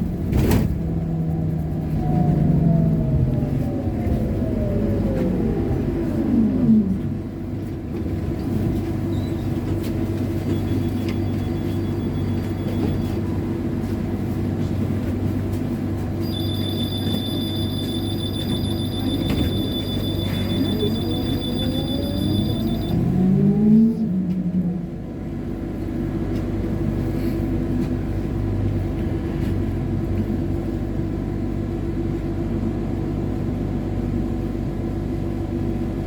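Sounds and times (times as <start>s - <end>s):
high electronic tone: 16.2s - 23.0s
electric traction motor whine: 16.2s - 23.8s.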